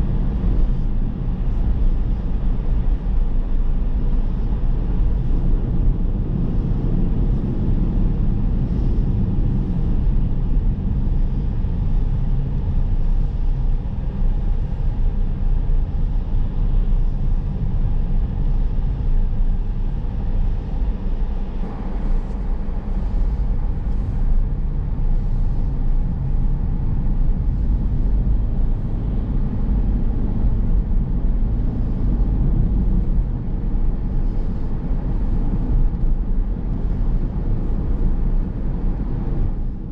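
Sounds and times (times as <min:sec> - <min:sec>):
car driving rumble: 0:19.5 - 0:39.9.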